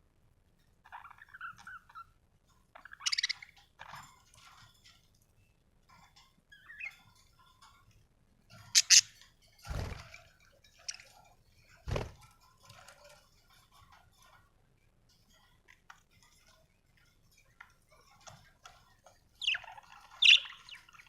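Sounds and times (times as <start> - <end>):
budgerigars chirping: 2.8 - 3.5, 8.8 - 9.1, 19.4 - 21.0.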